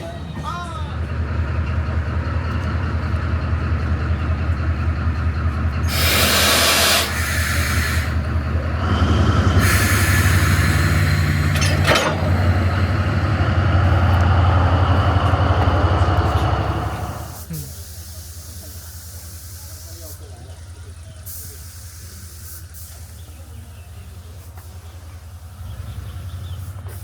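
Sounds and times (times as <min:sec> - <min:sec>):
locomotive engine hum: 0:00.0 - 0:27.0
loud air hiss: 0:05.9 - 0:12.7, 0:17.1 - 0:20.4, 0:21.2 - 0:23.5.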